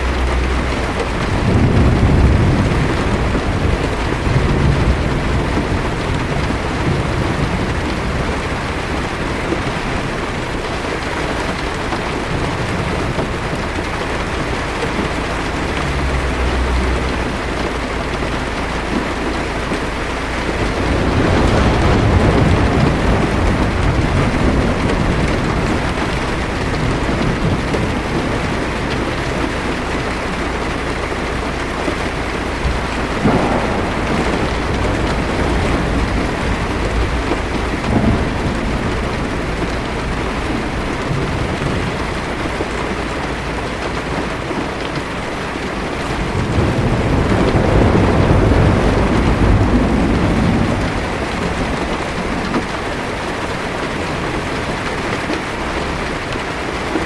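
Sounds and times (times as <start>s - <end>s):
heavy rain drumming on car roof: 0.0s - 57.0s
low thunder rumble: 0.0s - 57.0s
sharp cracks: 33.2s - 39.3s.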